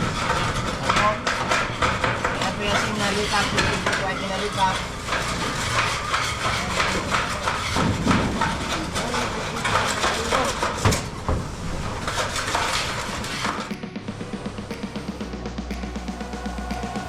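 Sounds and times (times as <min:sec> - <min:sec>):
knocks and clatter: 0:00.0 - 0:17.0
music with steady drum beat: 0:12.7 - 0:17.0.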